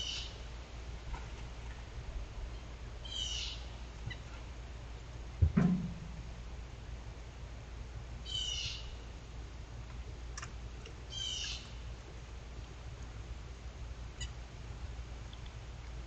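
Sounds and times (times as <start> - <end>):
low steady hum: 0.0 - 16.0
short bird calls: 11.1 - 11.8.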